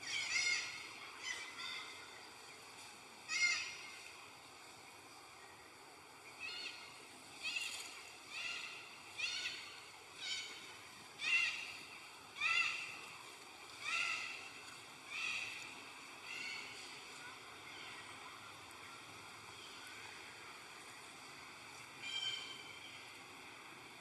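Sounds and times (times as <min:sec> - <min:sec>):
monkey high-pitched calls: 0:00.0 - 0:02.0, 0:03.3 - 0:03.8, 0:12.4 - 0:13.0, 0:13.8 - 0:14.4.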